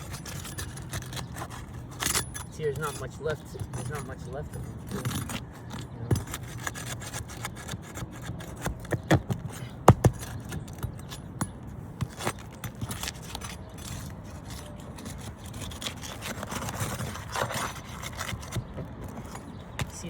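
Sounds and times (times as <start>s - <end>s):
roof shingles scraping: 0.0s - 4.1s, 4.7s - 11.2s, 12.0s - 20.0s
shingles cracking: 12.0s - 20.0s.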